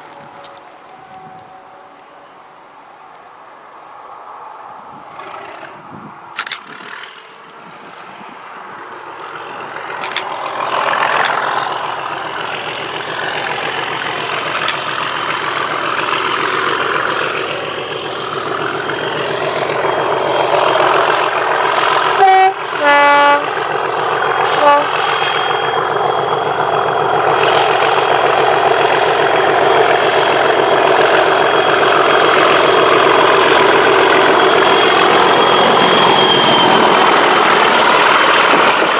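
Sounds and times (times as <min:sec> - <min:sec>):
two-tone train horn: 0:00.0 - 0:03.7, 0:09.4 - 0:27.9
diesel locomotive engine working hard: 0:00.0 - 0:38.9.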